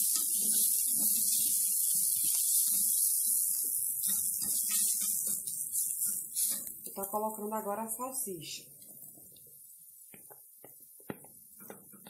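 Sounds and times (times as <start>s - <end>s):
spatula scraping a pot: 0.0s - 6.8s
vegetables sizzling in a pot: 0.0s - 12.0s.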